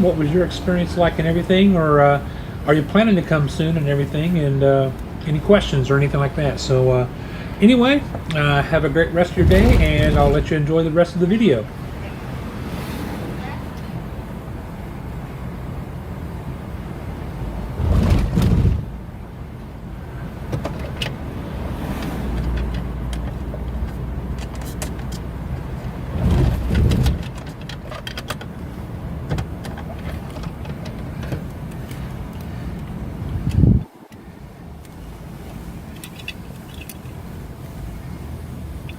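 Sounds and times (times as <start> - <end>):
car road and engine noise: 0.0 - 38.9
loud low rumbling bursts: 8.4 - 11.6, 17.4 - 19.2.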